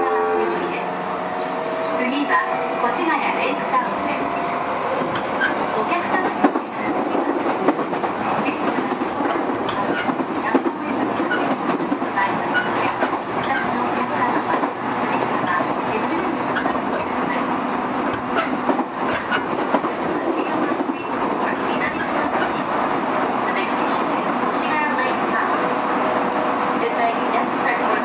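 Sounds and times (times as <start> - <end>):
wheels rumbling on track: 0.0 - 28.0.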